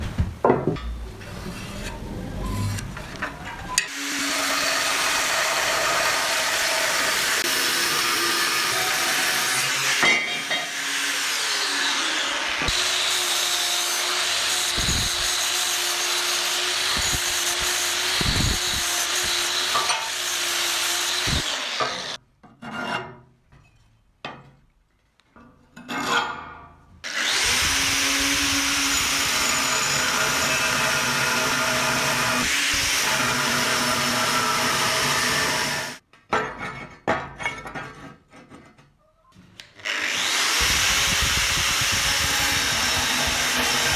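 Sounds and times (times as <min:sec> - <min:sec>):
angle grinder grinding steel: 0:01.2 - 0:22.2, 0:27.1 - 0:36.0, 0:39.8 - 0:43.9.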